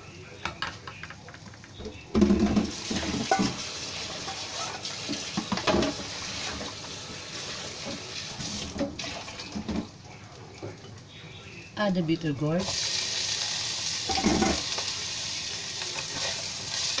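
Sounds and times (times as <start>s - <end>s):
beans sizzling in oil: 2.6s - 9.4s, 12.6s - 17.0s.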